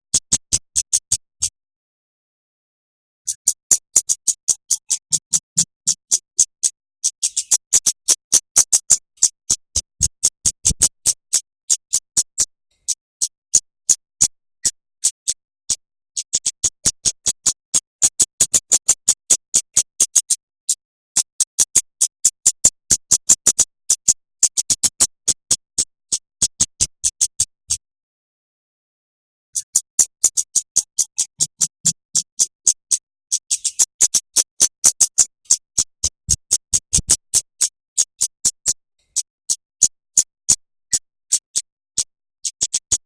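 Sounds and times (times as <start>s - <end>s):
bird high clicking notes: 3.3s - 20.4s, 29.6s - 41.7s.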